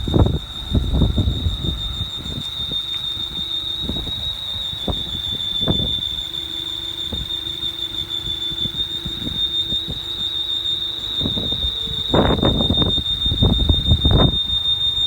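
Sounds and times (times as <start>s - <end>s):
dull low thumps and rumbles: 0.0s - 2.4s
high-pitched engine whine: 0.0s - 15.0s.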